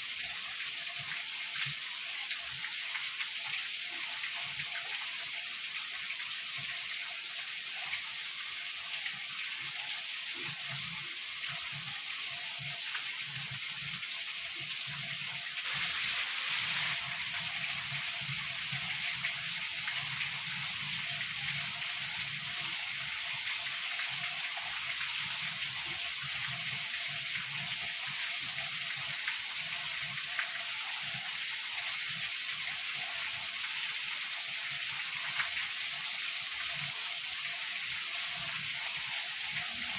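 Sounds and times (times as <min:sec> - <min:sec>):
heavy rain hissing: 0:15.6 - 0:17.2.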